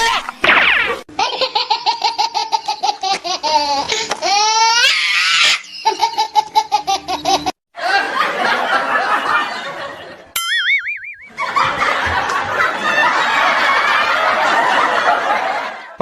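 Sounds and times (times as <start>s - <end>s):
noisy laughter: 5.7s - 10.3s, 11.3s - 16.0s
wobbling cartoon tone: 10.4s - 11.5s
rapid rhythmic laughter: 11.3s - 16.0s.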